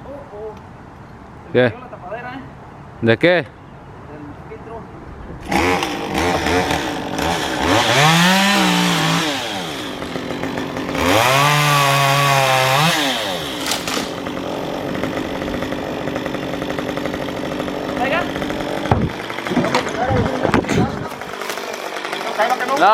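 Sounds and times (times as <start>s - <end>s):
chainsaw starting and revving: 5.4s - 22.9s.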